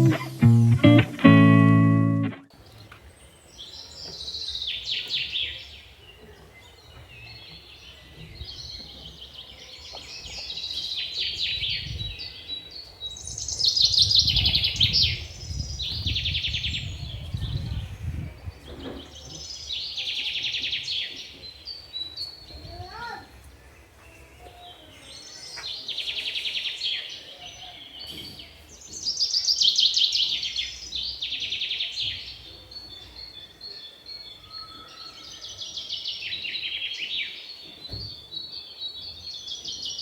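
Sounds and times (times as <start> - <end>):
small birds chirping in trills: 1.9 - 40.0.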